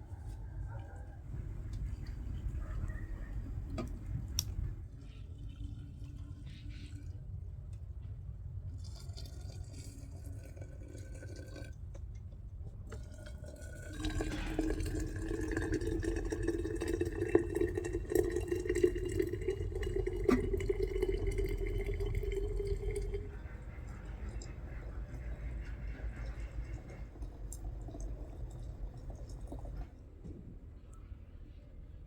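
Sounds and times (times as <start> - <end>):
water running into container: 8.6 - 29.9.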